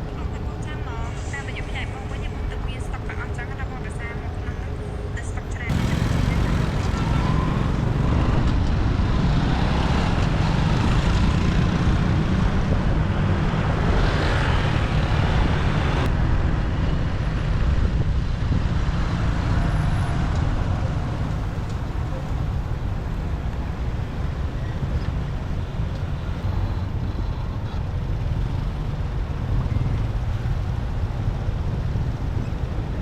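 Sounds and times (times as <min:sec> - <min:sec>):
motorbike engine rumble: 0:00.0 - 0:13.6, 0:20.2 - 0:33.0
road traffic: 0:00.0 - 0:33.0.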